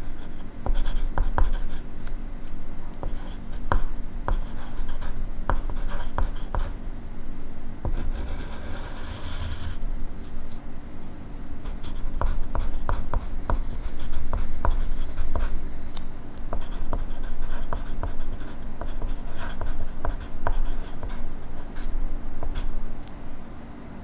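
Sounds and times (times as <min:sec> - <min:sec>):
pencil scratching on paper: 0:00.0 - 0:01.8, 0:03.0 - 0:06.7, 0:07.9 - 0:09.8, 0:11.7 - 0:15.6, 0:16.5 - 0:22.7
faint low hum: 0:00.0 - 0:24.0.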